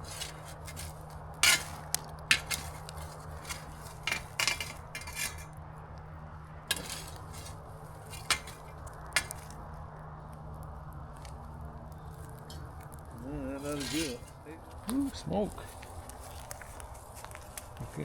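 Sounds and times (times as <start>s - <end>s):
metal utensils clinking on grill grate: 0.0s - 5.5s, 6.7s - 9.5s, 12.5s - 12.8s, 13.5s - 14.5s.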